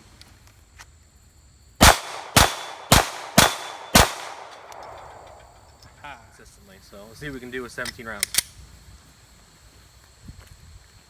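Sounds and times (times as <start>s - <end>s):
pistol shots with echo: 1.8s - 5.6s.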